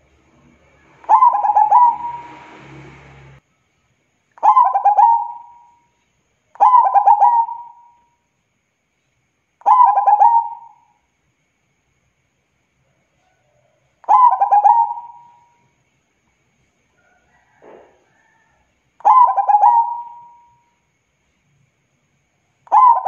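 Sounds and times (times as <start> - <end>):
dove cooing: 1.0 - 2.4, 4.4 - 5.7, 6.6 - 8.0, 9.6 - 10.8, 14.0 - 15.4, 19.0 - 20.6, 22.7 - 23.0.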